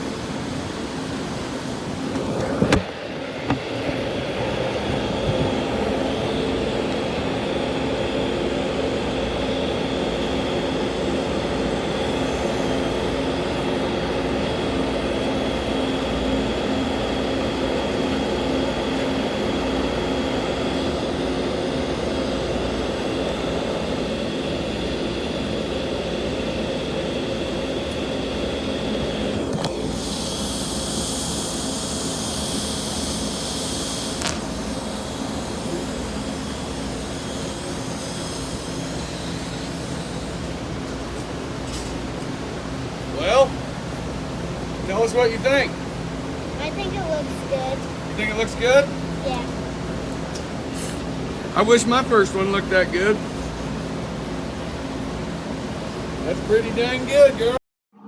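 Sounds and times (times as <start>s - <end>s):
hum: 19.3s - 39.2s
welding arc hissing: 29.9s - 40.4s.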